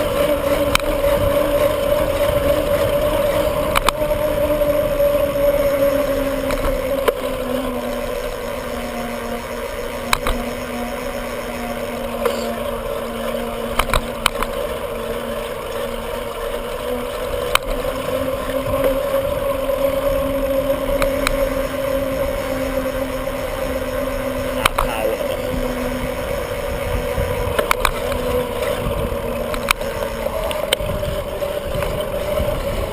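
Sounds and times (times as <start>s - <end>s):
bicycle two-tone hum: 0.0s - 32.9s
bike clicks: 0.0s - 32.9s.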